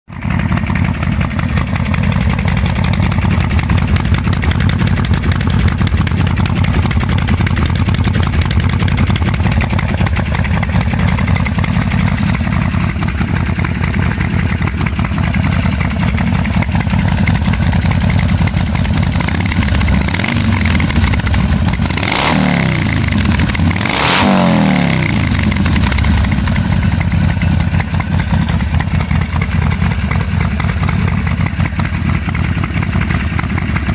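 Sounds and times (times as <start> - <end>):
motorcycle engine idling: 0.1 - 33.9
motorcycle throttle blips: 1.1 - 33.9.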